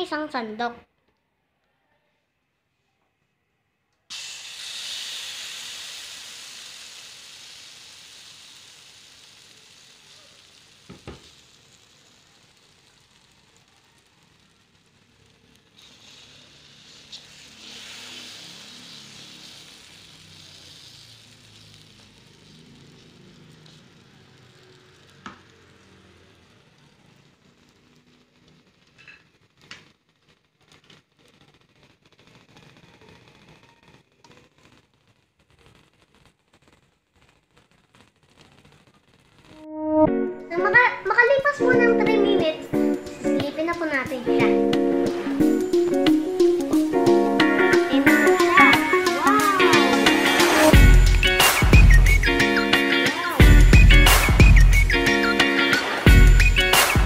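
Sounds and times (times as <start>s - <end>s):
batter sizzling in frying pan: 4.1s - 39.6s, 40.6s - 41.7s, 42.7s - 57.0s.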